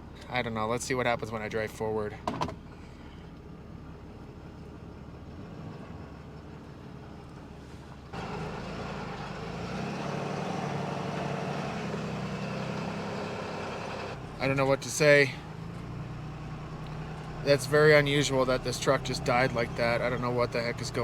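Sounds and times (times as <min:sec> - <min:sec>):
diesel engine running: 0:02.6 - 0:21.0.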